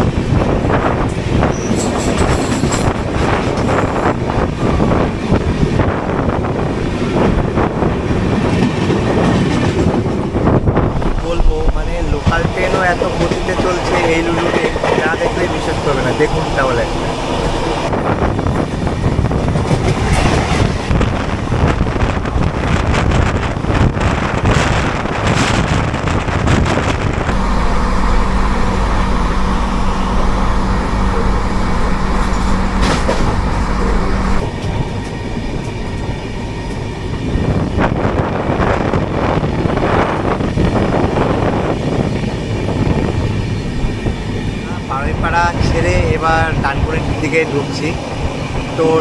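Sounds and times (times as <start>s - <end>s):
train wheels clattering: 0.0s - 11.2s, 12.2s - 27.3s
low hum with deep drone: 27.3s - 34.8s.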